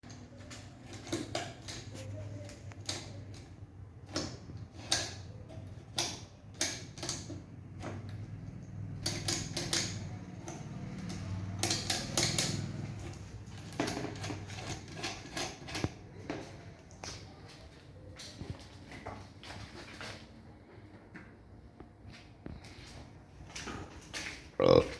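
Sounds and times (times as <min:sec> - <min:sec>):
hand tools clinking on metal: 0:08.6 - 0:16.0.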